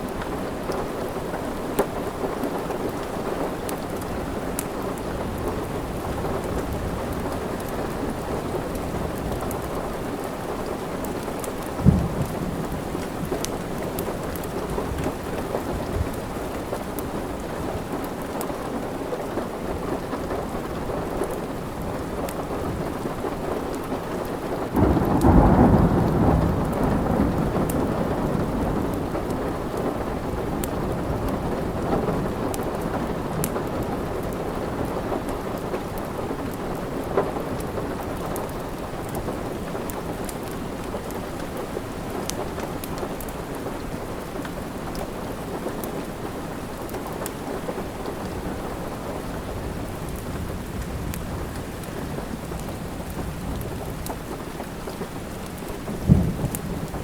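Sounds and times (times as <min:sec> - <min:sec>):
wood fire crackling: 0:00.0 - 0:25.4, 0:32.3 - 0:57.0
steady rain: 0:00.0 - 0:57.0
thunder rolling: 0:11.7 - 0:16.2, 0:24.8 - 0:29.7, 0:55.8 - 0:57.0.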